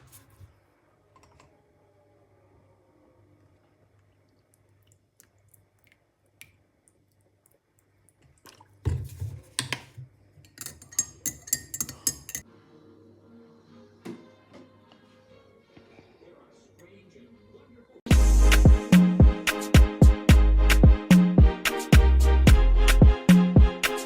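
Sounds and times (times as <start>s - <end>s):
cutlery clinking against dishes: 10.5s - 12.4s.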